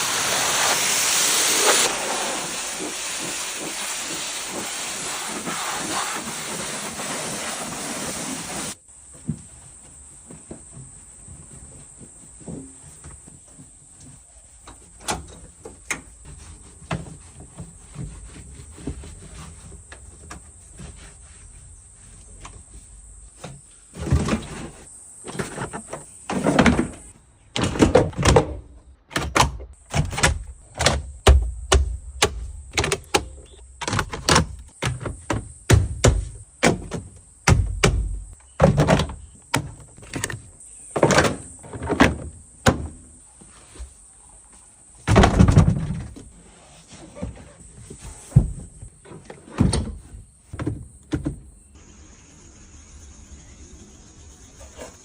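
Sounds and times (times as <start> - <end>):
steady high hiss: 0.0 - 9.7, 51.6 - 55.0
sharp knocks and thunks: 27.6 - 43.1, 45.0 - 46.3, 48.3 - 48.9.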